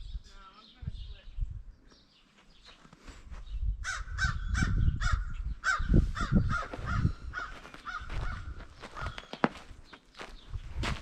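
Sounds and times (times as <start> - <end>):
crow cawing: 3.8 - 9.2.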